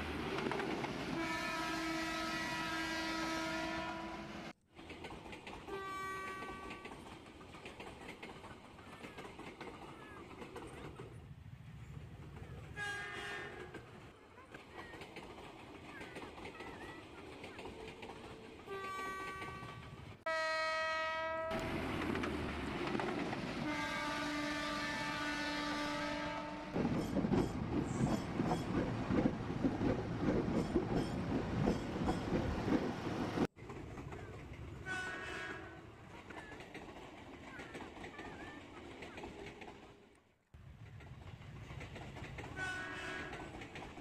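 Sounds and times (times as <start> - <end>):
train horn blasts: 1.1 - 4.5, 5.7 - 6.8, 12.7 - 13.8, 18.6 - 21.7, 23.6 - 26.8, 34.8 - 35.8, 42.5 - 43.5
faint short train horn: 1.2 - 4.3, 5.7 - 6.8, 12.7 - 13.8, 18.7 - 21.6, 23.6 - 26.8, 42.5 - 43.5
train wheels clattering over rail joints: 26.8 - 34.7, 40.7 - 44.0.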